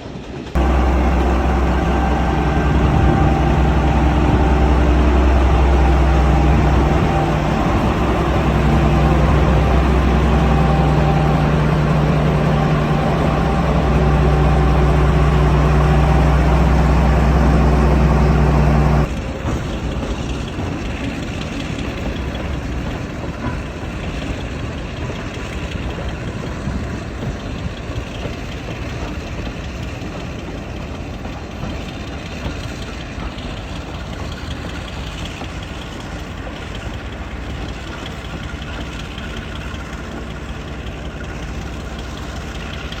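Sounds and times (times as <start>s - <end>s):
diesel engine idling: 0.6s - 24.2s.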